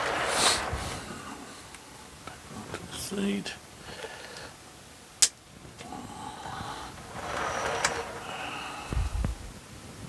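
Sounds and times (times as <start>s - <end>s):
dull low bumps: 0.0s - 1.8s, 5.9s - 9.6s.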